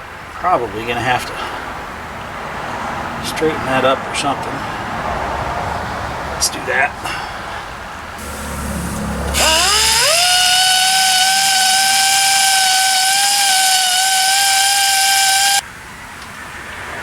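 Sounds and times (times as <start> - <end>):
power tool motor whine: 8.2 - 15.6.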